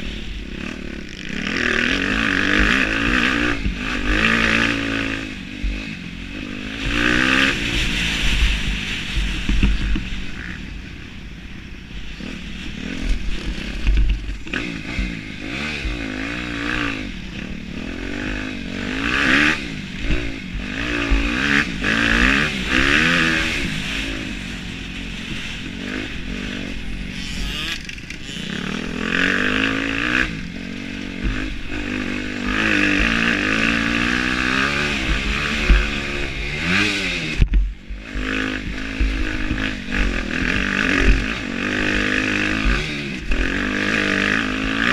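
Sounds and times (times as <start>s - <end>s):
motocross bike engine revving: 0.0s - 10.8s, 12.0s - 44.9s
wind noise on microphone: 6.8s - 11.0s.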